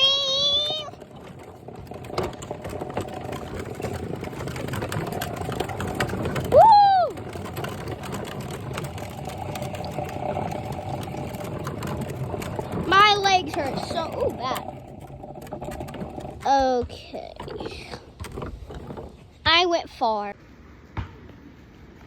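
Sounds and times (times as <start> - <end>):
small motor whirring: 0.0 - 19.2.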